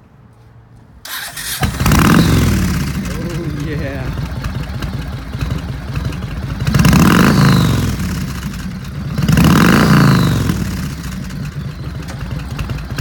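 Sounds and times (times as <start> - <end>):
motorcycle engine idling and revving: 1.1 - 13.0.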